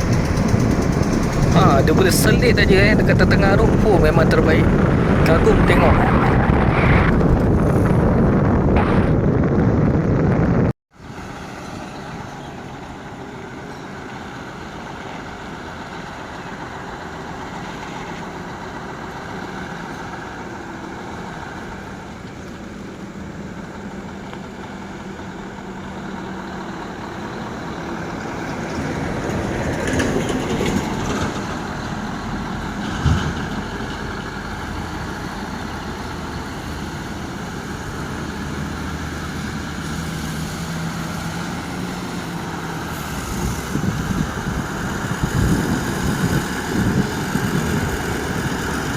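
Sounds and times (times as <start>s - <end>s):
heavy truck engine running: 0.0s - 48.9s
sharp thump: 8.7s - 9.4s.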